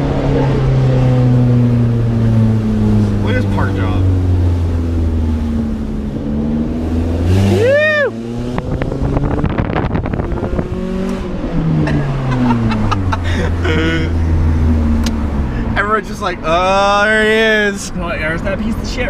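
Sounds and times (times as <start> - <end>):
car engine revving: 0.0 - 19.0
rising and falling whoop: 7.4 - 8.3
exhaust crackles and pops: 8.5 - 11.2.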